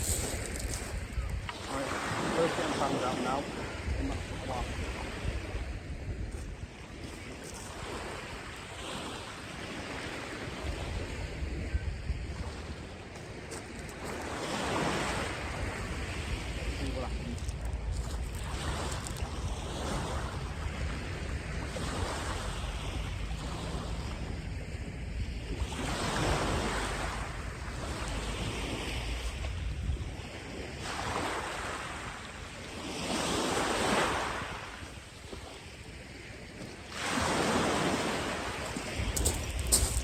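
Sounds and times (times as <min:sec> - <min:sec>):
wind rumbling on microphone: 0:00.0 - 0:01.8, 0:03.6 - 0:08.4, 0:10.2 - 0:31.2, 0:37.6 - 0:40.0
sea waves breaking on beach: 0:00.0 - 0:40.0.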